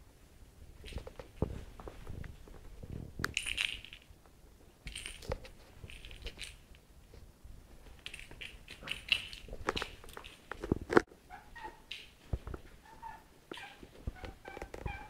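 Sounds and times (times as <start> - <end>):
scratching: 0.7 - 15.0
light clinking: 3.2 - 4.2, 4.8 - 6.9, 7.8 - 10.6
cat toy rustling: 4.9 - 11.0.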